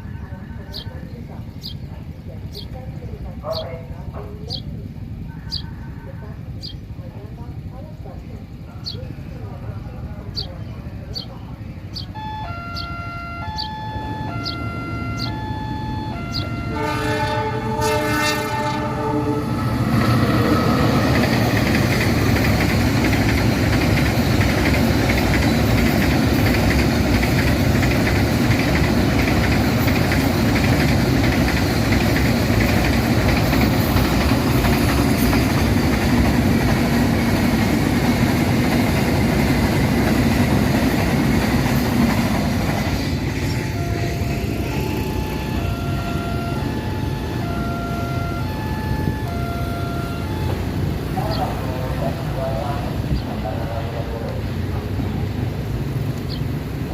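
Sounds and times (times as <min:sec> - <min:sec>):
train passing with wheel clatter: 0:00.0 - 0:56.9
two-note warning tone: 0:12.1 - 0:20.1, 0:43.4 - 0:50.9
train horn: 0:12.2 - 0:21.0, 0:43.5 - 0:50.7.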